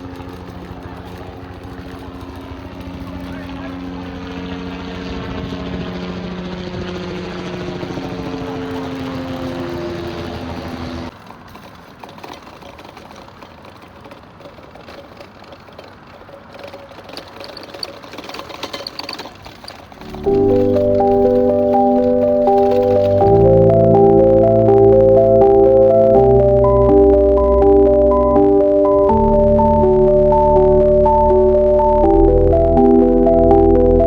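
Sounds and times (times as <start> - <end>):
engine passing by: 0.0 - 11.9, 19.9 - 24.8.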